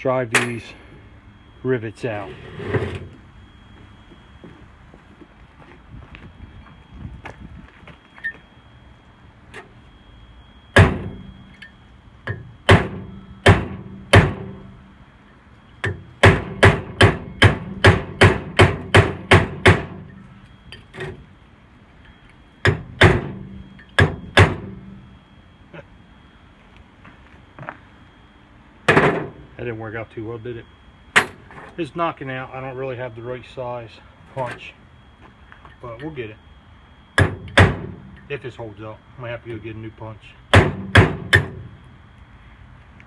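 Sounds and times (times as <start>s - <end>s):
hammer striking steel punch: 10.7s - 11.3s, 12.2s - 14.6s, 15.8s - 20.2s, 22.6s - 24.9s, 37.2s - 38.2s, 40.5s - 41.7s.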